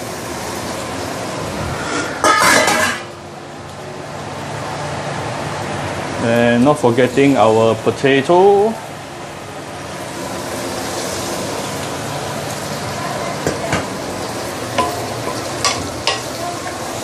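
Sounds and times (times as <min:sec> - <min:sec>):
food sizzling in a pan: 0:00.0 - 0:17.0
spatula knocking and scraping pan: 0:02.2 - 0:03.1.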